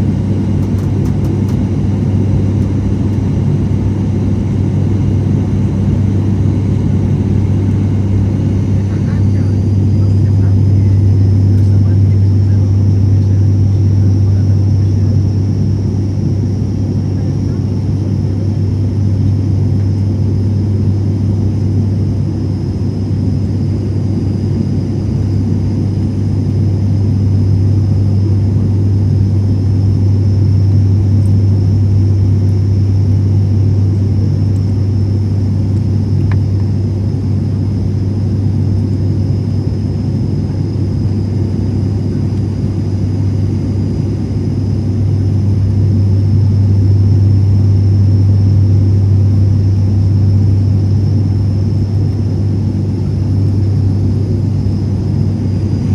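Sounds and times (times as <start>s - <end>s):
propeller plane cabin drone: 0.0s - 55.9s.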